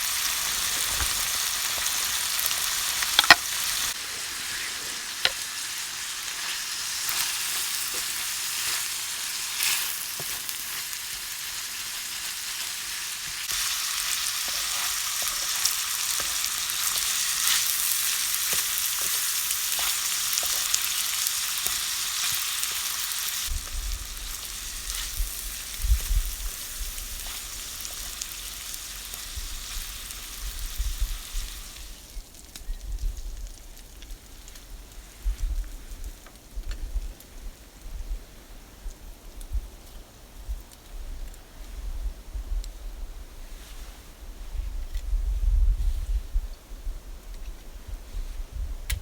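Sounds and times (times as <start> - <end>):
food sizzling in a pan: 0.0 - 33.6.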